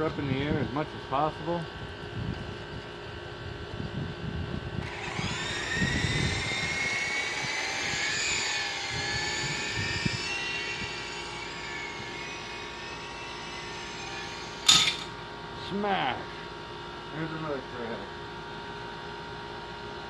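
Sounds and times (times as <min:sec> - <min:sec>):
wind buffeting microphone: 0:01.7 - 0:12.2
rc helicopter motor whining: 0:04.7 - 0:15.4.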